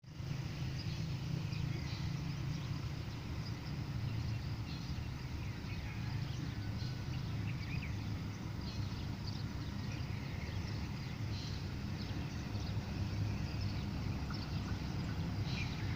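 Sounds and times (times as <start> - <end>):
locomotive low rumble: 0.0 - 15.9
bird chirps: 0.7 - 15.9.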